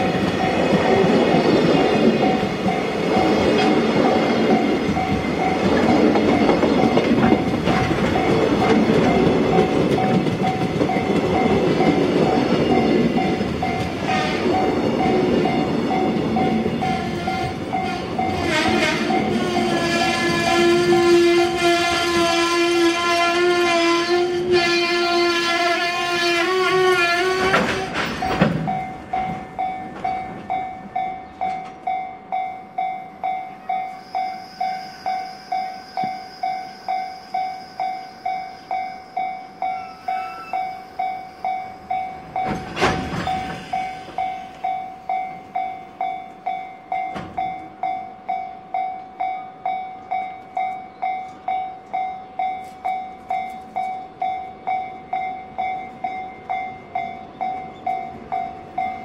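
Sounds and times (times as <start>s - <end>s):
train wheels clicking over rail joints: 0.0s - 22.3s, 26.5s - 32.0s, 41.9s - 48.0s
level-crossing warning bell: 0.0s - 59.0s.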